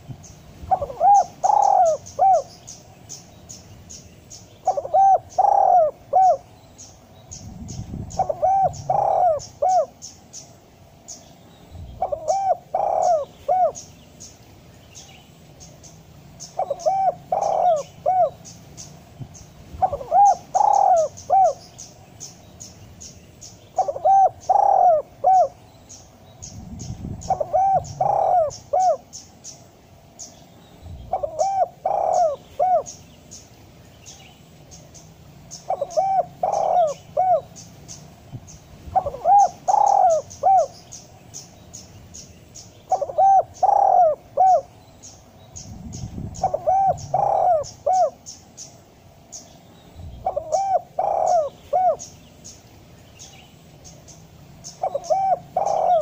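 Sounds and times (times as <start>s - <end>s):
dove cooing: 0.0s - 2.7s, 4.6s - 10.2s, 11.9s - 13.9s, 16.4s - 18.5s, 19.7s - 21.6s, 23.7s - 25.6s, 26.5s - 29.2s, 31.1s - 33.0s, 35.5s - 37.6s, 38.9s - 41.0s, 42.8s - 44.7s, 45.8s - 48.4s, 50.2s - 52.2s, 54.6s - 56.0s.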